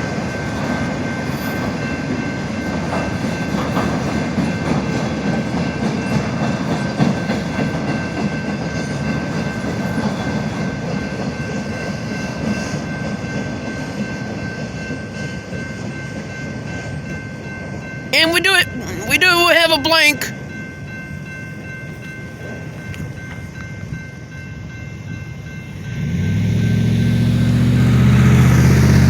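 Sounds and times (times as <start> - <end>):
train railcars rumbling: 0.0 - 29.0.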